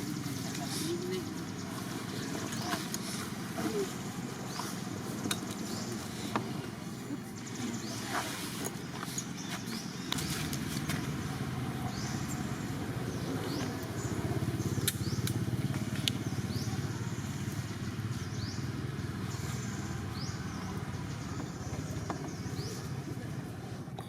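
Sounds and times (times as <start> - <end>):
small engine running: 9.2 - 23.8.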